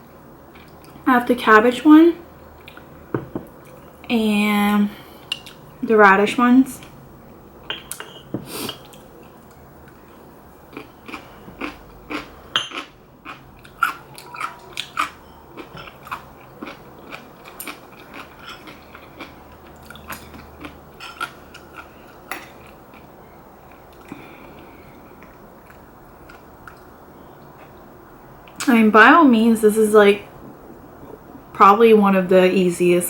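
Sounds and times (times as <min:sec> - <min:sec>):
person chewing crunchy food: 0:07.9 - 0:27.8.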